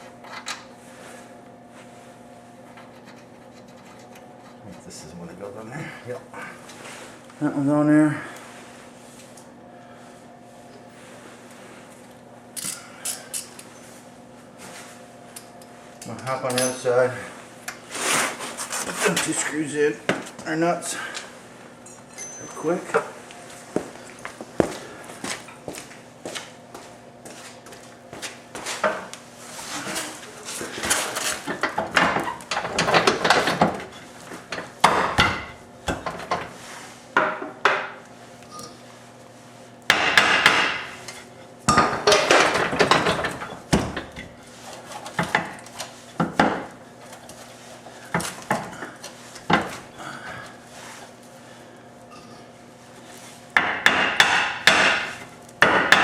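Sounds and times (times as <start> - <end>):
faint steady hum: 0.0 - 56.0
hand tools and metal parts clattering: 16.0 - 17.1, 21.8 - 23.0, 29.6 - 36.6, 41.0 - 49.8.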